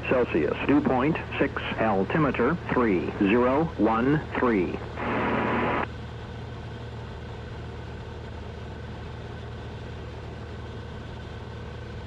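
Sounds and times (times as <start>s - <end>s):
light aircraft engine and propeller drone: 0.0s - 12.0s
radio static burst: 4.4s - 5.8s.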